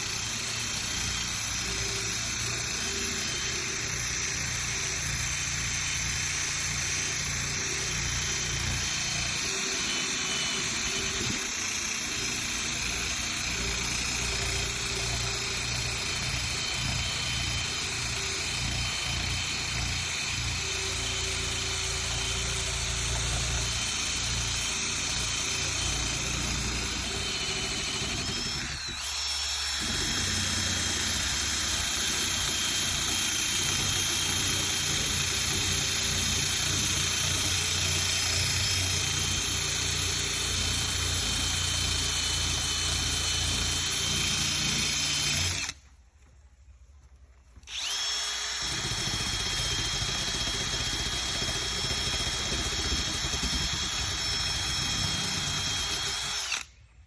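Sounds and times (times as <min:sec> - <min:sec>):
sander grinding scrape on metal: 0:00.0 - 0:39.5
power sander motor whine: 0:00.0 - 0:45.8, 0:47.6 - 0:56.7.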